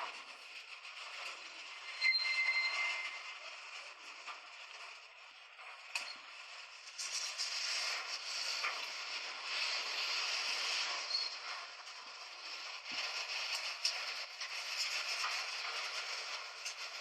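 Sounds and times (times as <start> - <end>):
train running on rails: 0.0 - 17.0
creaks: 1.0 - 3.4.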